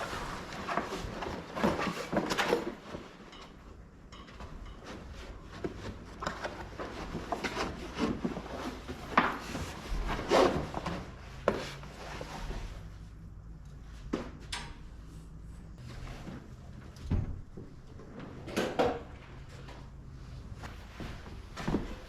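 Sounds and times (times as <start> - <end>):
canvas rustling and rubbing: 0.0 - 3.2, 5.0 - 13.0.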